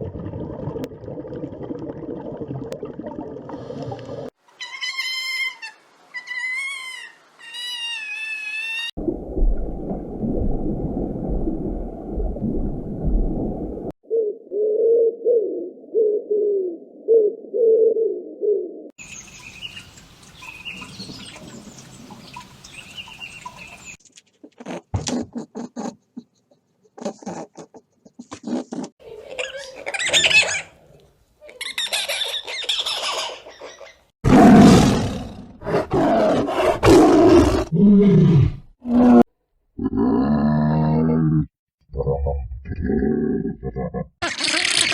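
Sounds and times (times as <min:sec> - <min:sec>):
high bird chirping: 0:19.0 - 0:24.0
animal roaring: 0:34.3 - 0:44.1.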